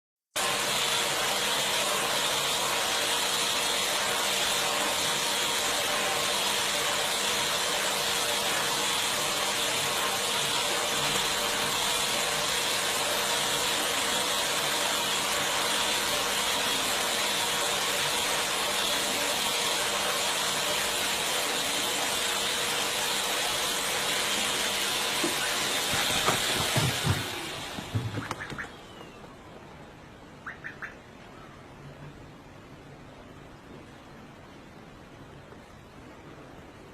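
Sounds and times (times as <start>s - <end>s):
vacuum cleaner running: 0.4s - 29.2s.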